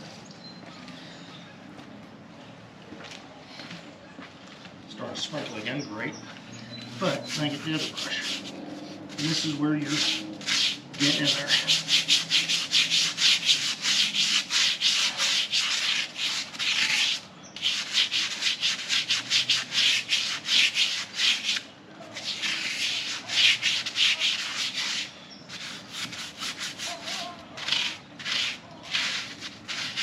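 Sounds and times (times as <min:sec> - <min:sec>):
stiff brush scrubbing: 0:07.0 - 0:30.0.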